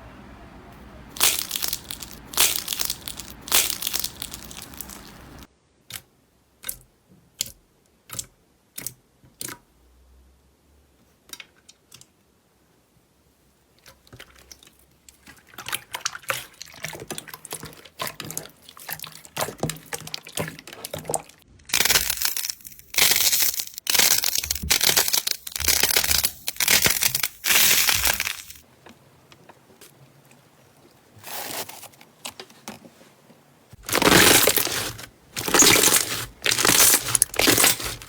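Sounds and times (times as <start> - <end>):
slime crackling: 1.1 - 5.5, 15.6 - 28.6, 33.8 - 38.0
slime popping: 1.2 - 5.4, 33.8 - 38.0.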